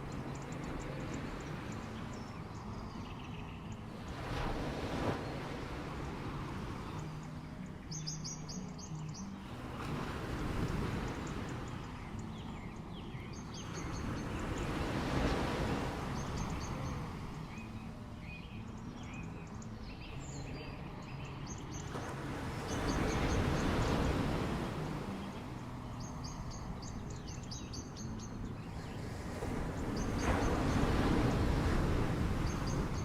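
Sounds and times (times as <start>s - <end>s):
birds chirping: 0.0s - 33.0s
waves washing onto beach: 0.0s - 33.0s.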